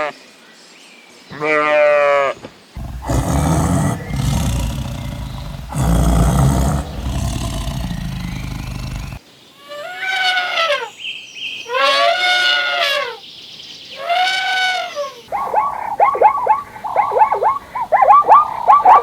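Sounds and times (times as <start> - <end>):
drawn-out animal calls: 2.8 - 9.2
low rough animal roar: 2.8 - 9.2.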